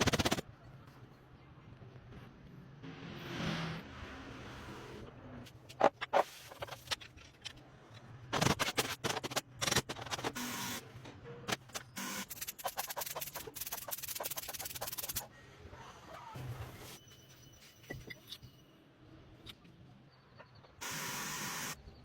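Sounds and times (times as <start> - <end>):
metal parts and tools clicking: 5.6 - 10.8, 11.5 - 15.3.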